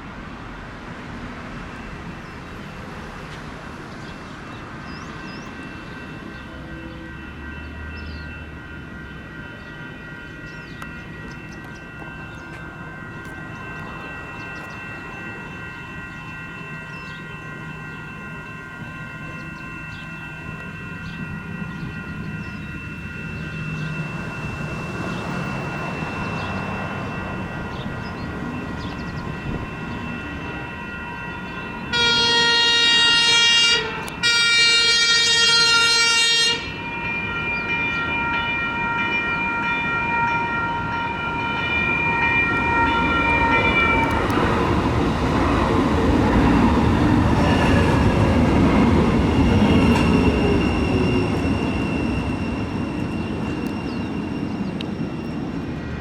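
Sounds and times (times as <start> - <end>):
train wheels rumbling on rails: 0.0 - 38.2, 40.2 - 56.0
steady high ringing tone: 4.2 - 56.0
train horn blasts: 13.2 - 44.6.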